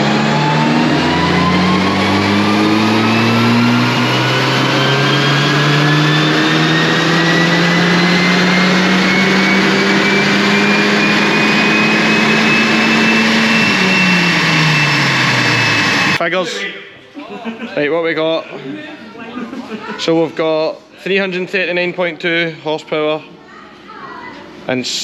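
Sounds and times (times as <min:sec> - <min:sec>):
car engine revving at full throttle: 0:00.0 - 0:16.2
high whine: 0:00.0 - 0:16.3.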